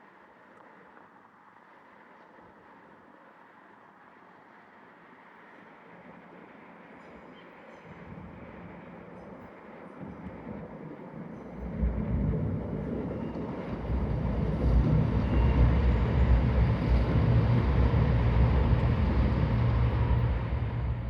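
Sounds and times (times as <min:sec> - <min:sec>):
diesel train engines droning: 0:11.6 - 0:21.0.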